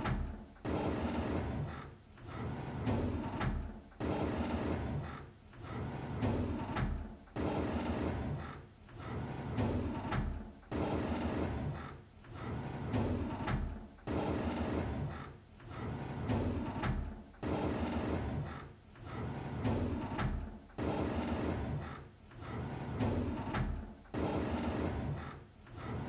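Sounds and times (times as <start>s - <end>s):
drawer sliding open: 15.7s - 26.0s.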